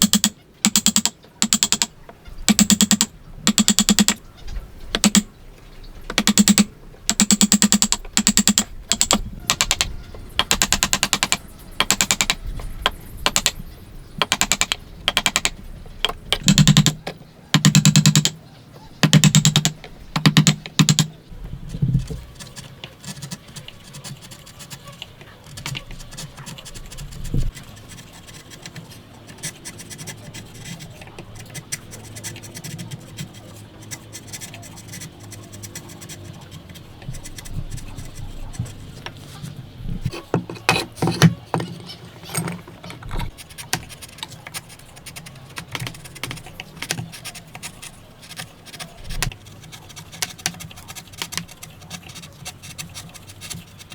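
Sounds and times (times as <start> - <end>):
quiet scraping on wood: 21.4 - 53.9.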